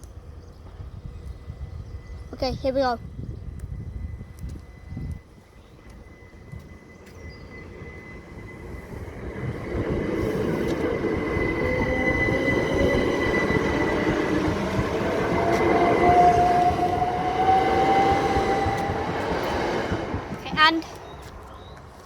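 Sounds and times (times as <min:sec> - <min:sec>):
train passing: 0:00.0 - 0:22.0
steady high tone: 0:03.0 - 0:21.0
whine rising in pitch: 0:03.1 - 0:20.6.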